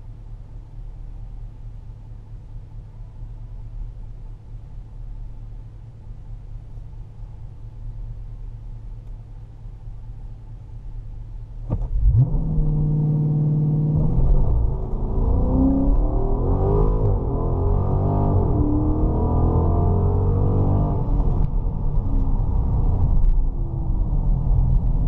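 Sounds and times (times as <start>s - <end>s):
car engine revving and accelerating: 11.6s - 25.0s.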